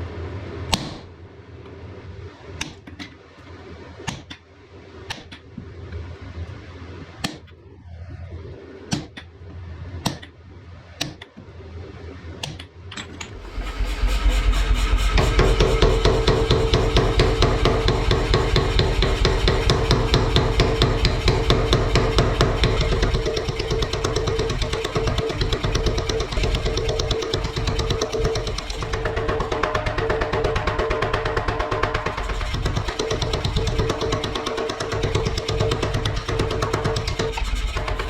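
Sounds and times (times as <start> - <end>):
power hammer pounding with hum: 13.3 - 38.0
hammer blows on hot iron: 13.4 - 38.0.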